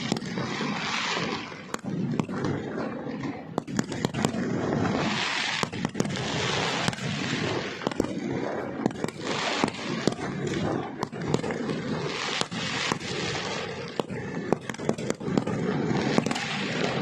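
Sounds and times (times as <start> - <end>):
fireworks bangs and cracks: 0.0 - 17.0.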